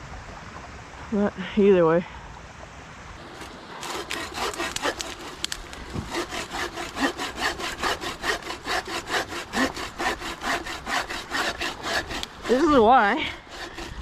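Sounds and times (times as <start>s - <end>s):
hand saw cutting wood: 3.3s - 14.0s.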